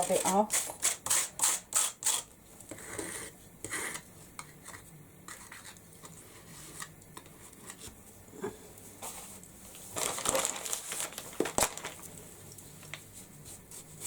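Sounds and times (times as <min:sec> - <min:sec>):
spatula scraping: 0:00.0 - 0:07.8.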